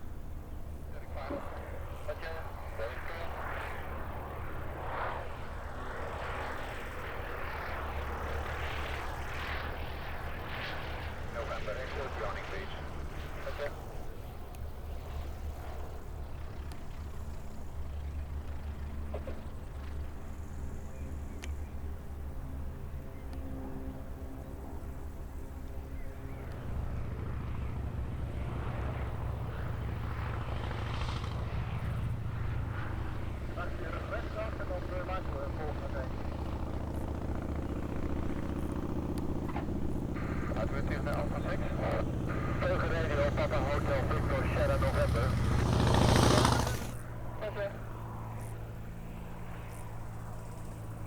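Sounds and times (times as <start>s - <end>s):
propeller aircraft engine drone: 0.0s - 51.0s
piston engine drone: 26.3s - 47.1s.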